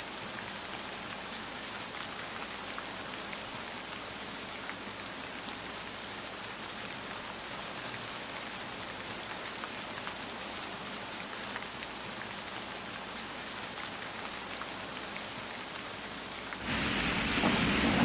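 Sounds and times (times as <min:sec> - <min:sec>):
steady rain falling: 0:00.0 - 0:18.0
deep rumble: 0:16.7 - 0:18.0.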